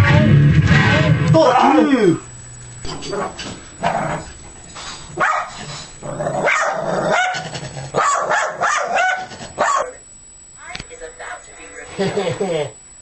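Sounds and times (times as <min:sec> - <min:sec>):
dog barking angrily: 0:05.2 - 0:10.0.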